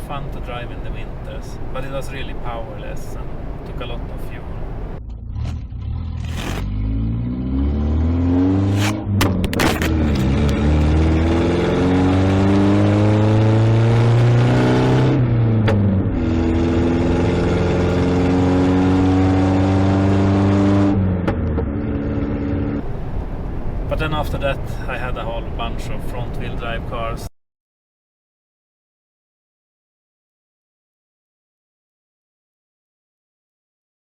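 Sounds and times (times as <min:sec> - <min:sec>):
car engine accelerating through gears: 0:04.4 - 0:24.8.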